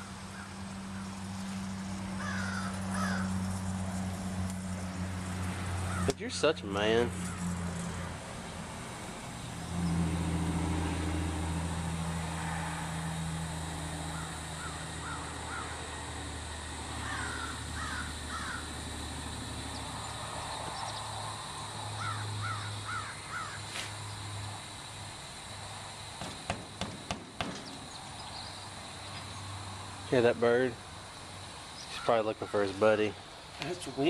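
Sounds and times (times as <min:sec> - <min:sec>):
low engine hum: 0:00.0 - 0:31.6
crow cawing: 0:02.2 - 0:03.4, 0:05.9 - 0:06.2, 0:14.0 - 0:15.8, 0:17.0 - 0:18.8, 0:22.0 - 0:23.7, 0:31.9 - 0:32.7.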